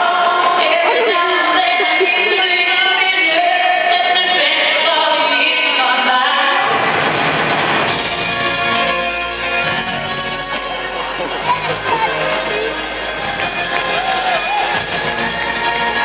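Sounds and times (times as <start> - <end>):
live music with singing: 0.0 - 16.0.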